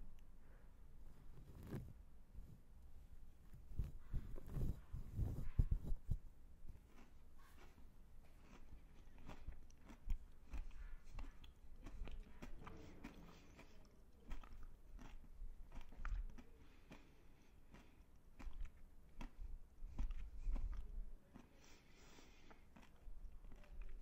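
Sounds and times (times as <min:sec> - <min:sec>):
wet mouth sounds: 0:06.8 - 0:24.0.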